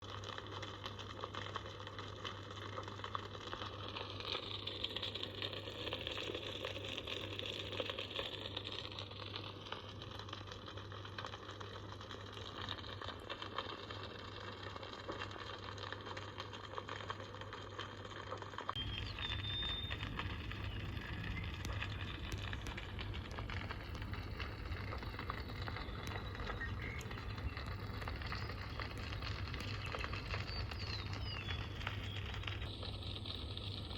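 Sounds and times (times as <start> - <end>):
wood fire crackling: 0.0 - 33.9
low rumble: 18.8 - 33.9.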